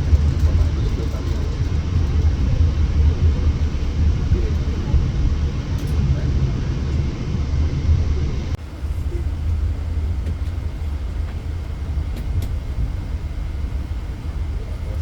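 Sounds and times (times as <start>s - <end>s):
passenger train rumble: 0.0s - 15.0s.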